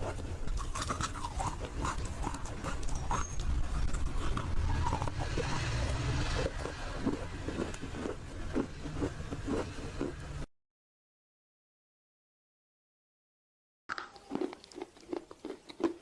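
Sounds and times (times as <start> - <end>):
mouth sounds: 0.0 - 10.3
crunchy chewing: 0.0 - 10.4, 13.9 - 16.0.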